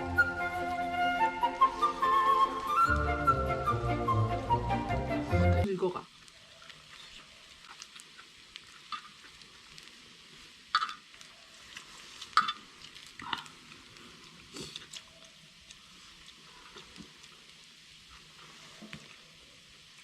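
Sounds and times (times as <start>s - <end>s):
meat sizzling on a griddle: 5.7s - 14.8s, 15.4s - 20.0s.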